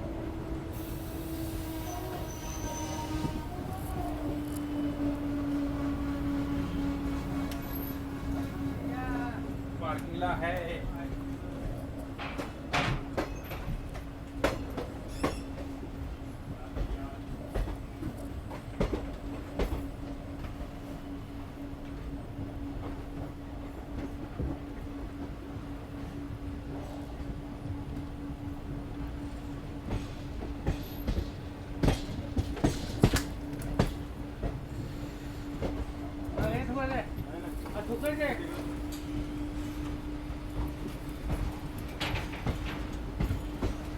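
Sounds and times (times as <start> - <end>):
train running hum: 0.0 - 43.9
train wheels clacking over rail joints: 11.7 - 15.8, 29.8 - 43.9
wheel clacks over rail joints: 40.5 - 43.9.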